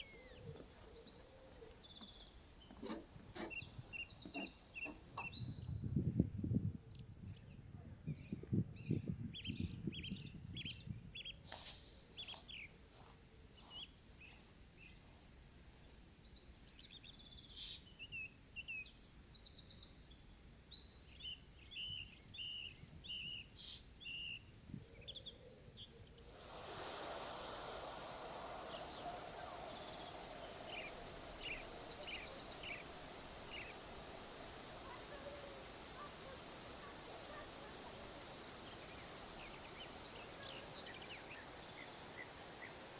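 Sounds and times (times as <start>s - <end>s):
small birds chirping: 0.0s - 5.9s, 12.1s - 42.9s
steady rushing noise: 26.3s - 42.9s.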